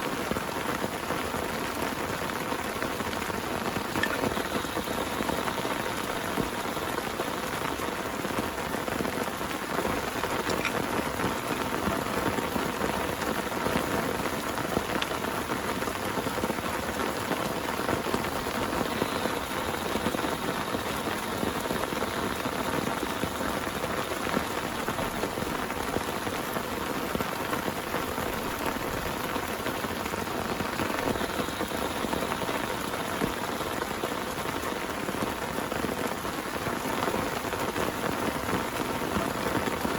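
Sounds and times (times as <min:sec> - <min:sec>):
heavy rain pouring: 0:00.0 - 0:39.9
individual raindrop ticks: 0:00.0 - 0:39.9.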